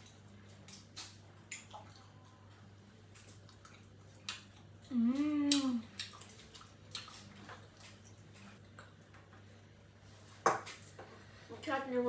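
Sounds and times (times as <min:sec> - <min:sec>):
wet mouth clicks and chewing: 0:03.2 - 0:09.0
hummed voice: 0:04.8 - 0:05.9.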